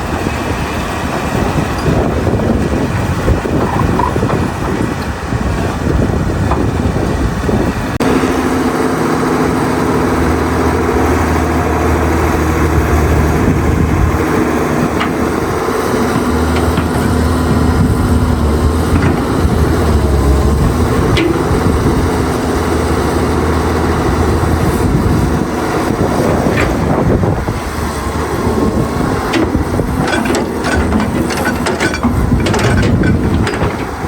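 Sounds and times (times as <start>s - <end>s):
excavator diesel engine running: 0.0s - 34.0s
metal clanks and knocks: 14.4s - 22.4s, 29.2s - 34.0s.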